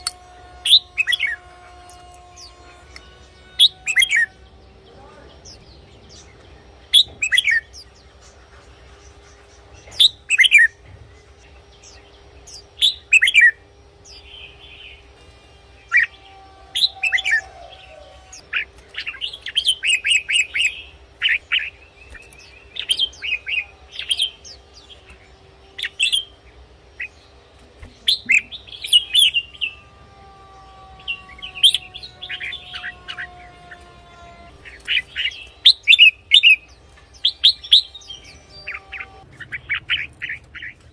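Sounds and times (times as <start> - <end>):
bird singing whistled phrases: 3.6 - 4.3, 7.0 - 7.7.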